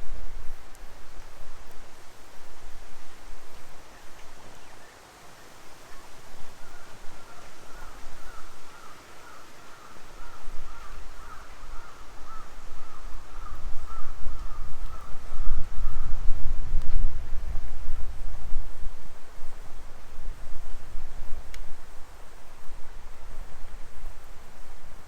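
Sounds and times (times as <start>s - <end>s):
wind rumble on microphone: 0.0s - 4.9s, 10.0s - 25.0s.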